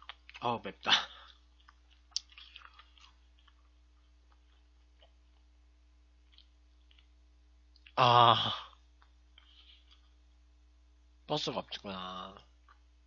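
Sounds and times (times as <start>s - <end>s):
person chewing: 0.0s - 0.4s, 1.1s - 5.6s, 6.2s - 8.0s.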